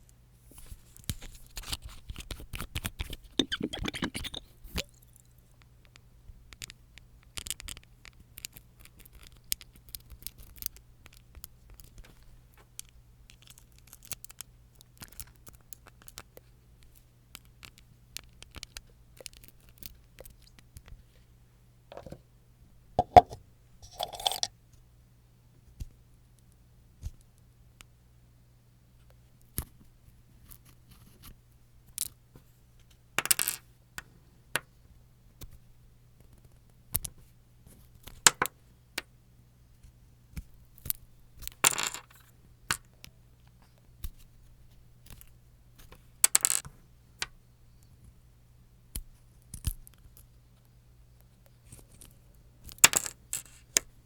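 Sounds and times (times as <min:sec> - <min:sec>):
small clicks taps and scratches: 0:05.6 - 0:21.0.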